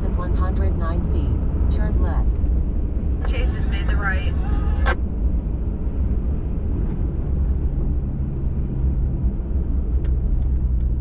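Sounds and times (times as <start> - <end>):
faint steady hum: 0.0 - 6.9
pickup engine and tires rumbling: 0.0 - 11.0.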